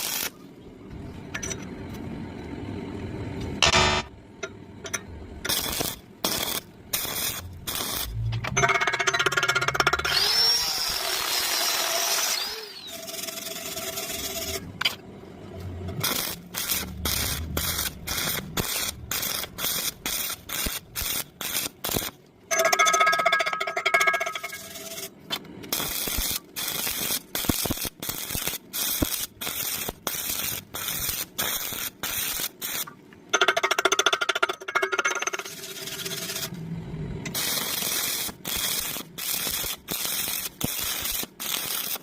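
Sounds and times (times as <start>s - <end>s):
electric welding arc bursts: 0.0s - 0.4s, 5.5s - 8.2s, 10.2s - 14.6s, 16.0s - 22.2s, 25.7s - 32.9s, 37.3s - 42.0s.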